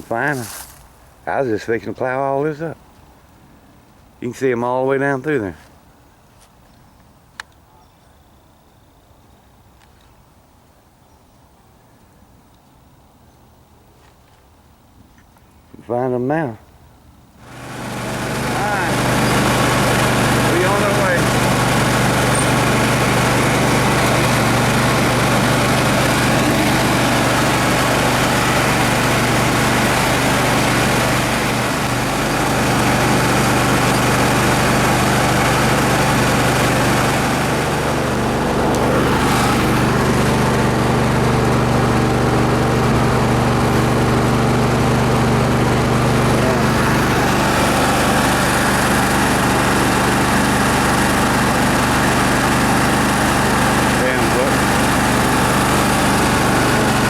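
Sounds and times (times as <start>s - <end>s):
tractor engine running: 0.0s - 0.5s, 17.4s - 57.0s.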